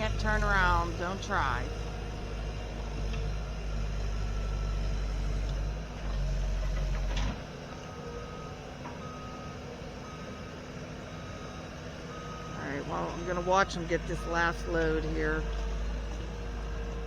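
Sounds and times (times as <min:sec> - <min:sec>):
backup alarm beeping: 0:11.2 - 0:15.4.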